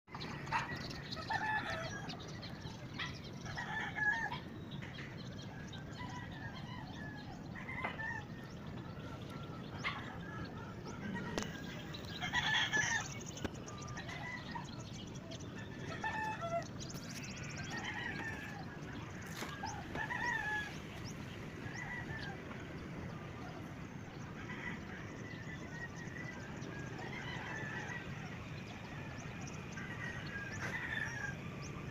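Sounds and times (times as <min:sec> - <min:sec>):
chickens calling: 0:00.1 - 0:31.9.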